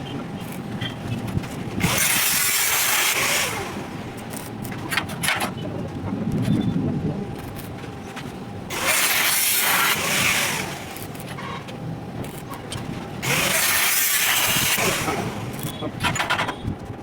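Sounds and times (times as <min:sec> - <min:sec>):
crackling welding arc: 0:01.8 - 0:04.7, 0:08.7 - 0:11.4, 0:13.2 - 0:16.2.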